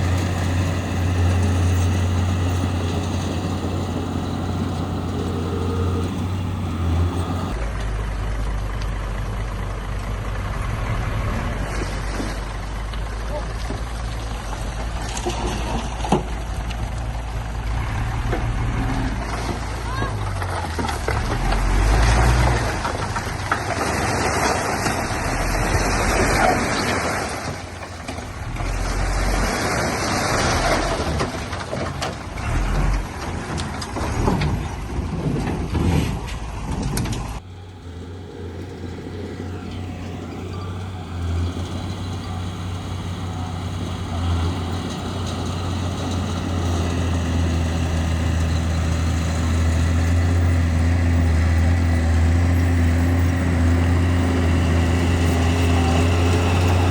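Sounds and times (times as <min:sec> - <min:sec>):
deep engine drone: 0:00.0 - 0:19.6, 0:36.6 - 0:56.9
diesel machinery running under load: 0:00.0 - 0:56.9.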